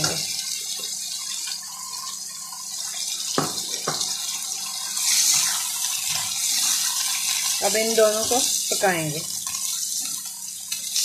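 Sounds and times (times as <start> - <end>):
chicken sizzling in hot oil: 0.0 - 11.0
sharp knocks on a pan: 3.4 - 4.1.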